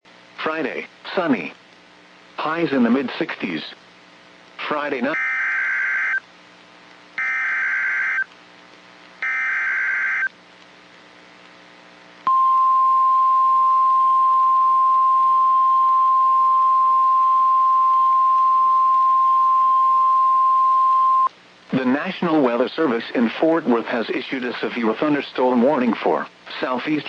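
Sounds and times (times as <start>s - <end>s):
screechy digital data bursts: 5.2s - 6.2s, 7.2s - 8.3s, 9.2s - 10.3s
steady warning alarm tone: 5.2s - 6.2s, 7.2s - 8.2s, 9.2s - 10.3s.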